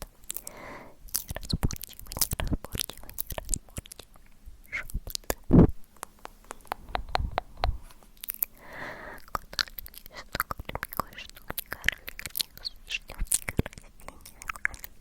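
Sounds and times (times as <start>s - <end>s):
wet tongue and lip clicks: 1.1s - 8.6s, 9.2s - 15.0s
breathy puff: 8.6s - 9.2s.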